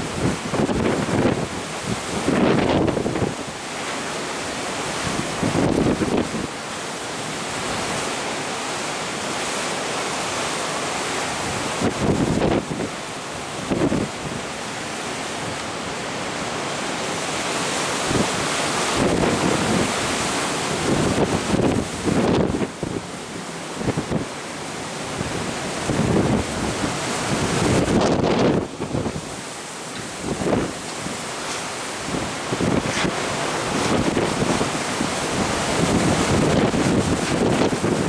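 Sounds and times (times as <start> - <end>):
wind buffeting microphone: 0.0 - 3.6, 4.9 - 6.5, 11.3 - 15.6, 17.2 - 23.1, 23.8 - 24.4, 25.1 - 38.0
rush of wind and sea: 0.0 - 38.0.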